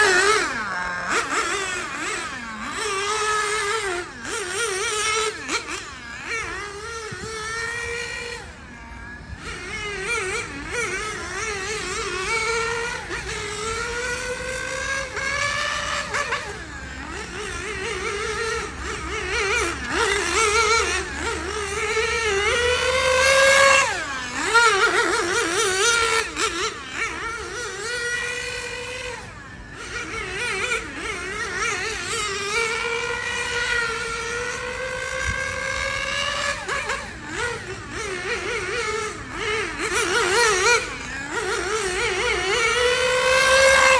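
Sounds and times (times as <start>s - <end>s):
small nitro engine revving: 0.0s - 43.9s.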